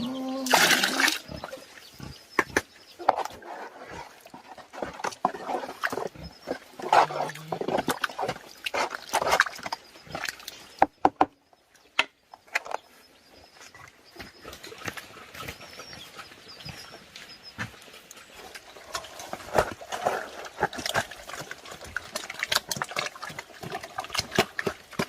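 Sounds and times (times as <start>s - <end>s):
pigs grunting: 0.0s - 10.4s.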